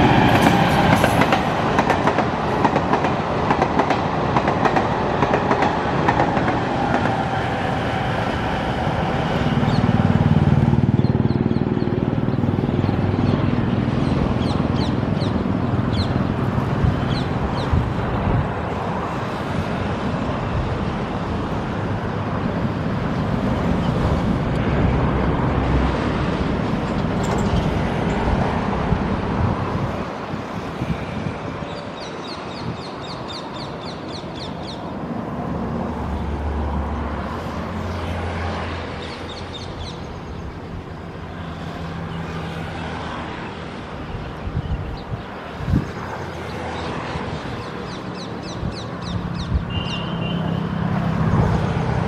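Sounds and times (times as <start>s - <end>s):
train rumbling along track: 0.0s - 52.0s
birds chirping: 10.9s - 18.0s, 39.0s - 40.7s, 41.8s - 50.7s.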